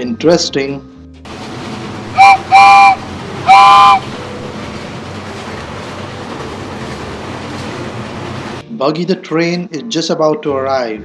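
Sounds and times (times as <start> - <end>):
train horn toots: 1.3 - 4.6
train running rumble: 1.3 - 8.6.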